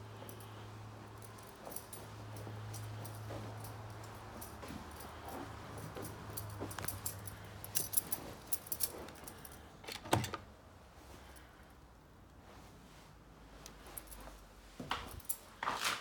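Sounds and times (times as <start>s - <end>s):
small metal objects jingling: 0.2s - 9.7s.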